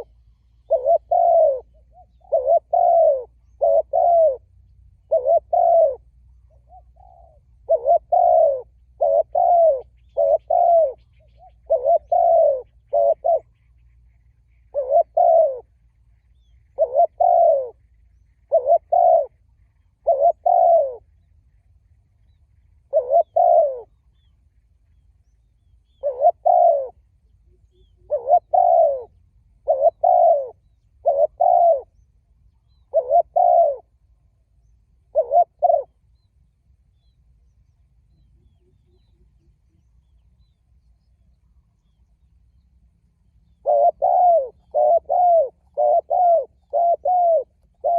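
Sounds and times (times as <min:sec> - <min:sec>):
dove cooing: 0:00.0 - 0:13.9, 0:14.5 - 0:21.2, 0:22.8 - 0:24.3, 0:25.8 - 0:32.0, 0:32.7 - 0:34.1, 0:35.0 - 0:36.3, 0:43.5 - 0:47.9.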